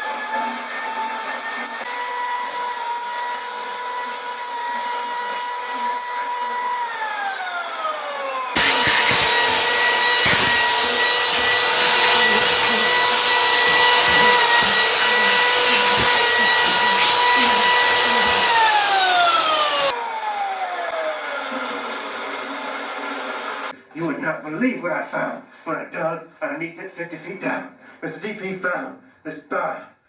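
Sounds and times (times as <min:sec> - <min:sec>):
chainsaw cutting under load: 0:08.5 - 0:19.9.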